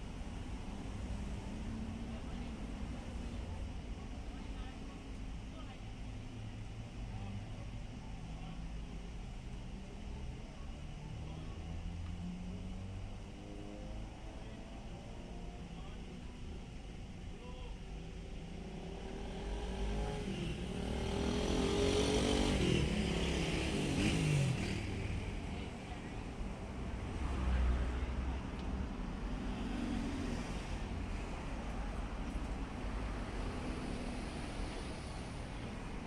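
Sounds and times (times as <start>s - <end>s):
traffic rumble: 0.0s - 36.0s
vehicle engine revving: 18.6s - 25.5s.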